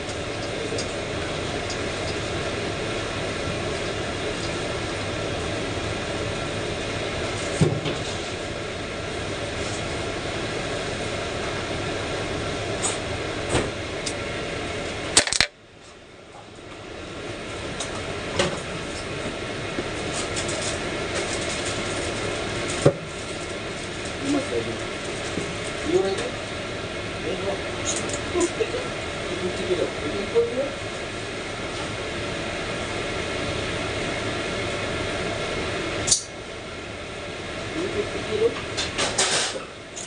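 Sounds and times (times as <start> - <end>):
mechanical background noise: 13.8 - 16.0.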